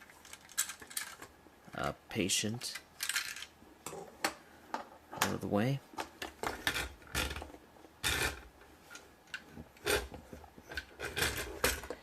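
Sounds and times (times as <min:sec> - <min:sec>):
plastic bricks clicking: 0:00.2 - 0:01.3.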